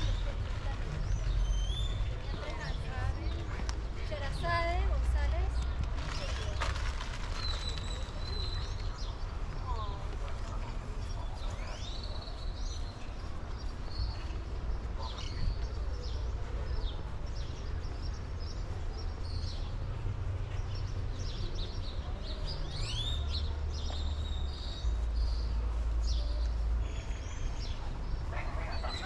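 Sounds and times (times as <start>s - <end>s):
birds chirping: 11.0s - 29.0s.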